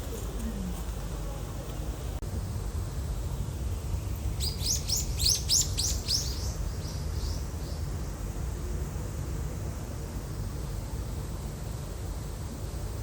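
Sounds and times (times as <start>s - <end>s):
low background rumble: 0.0s - 13.0s
small bird chirping: 4.0s - 8.2s.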